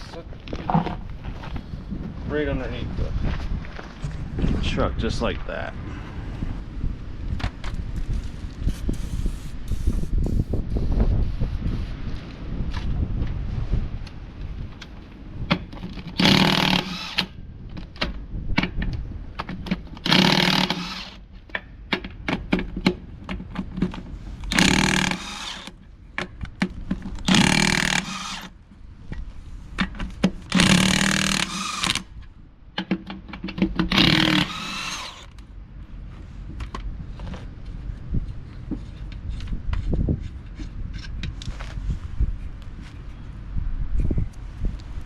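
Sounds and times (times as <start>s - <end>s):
impact wrench bursts: 16.2s - 17.3s, 20.1s - 21.2s, 24.5s - 25.7s, 27.2s - 28.5s, 30.5s - 32.1s, 33.9s - 35.3s
sharp clicks and knocks: 32.8s - 35.4s.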